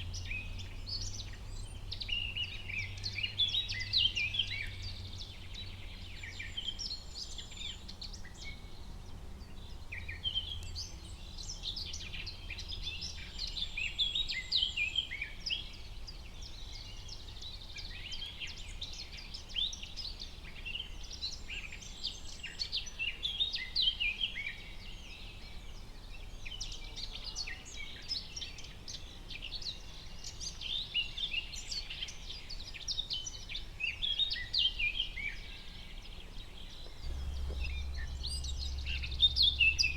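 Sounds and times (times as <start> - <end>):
songbirds chirping and trilling: 0.0 - 39.9
faint low rumble: 36.6 - 39.9.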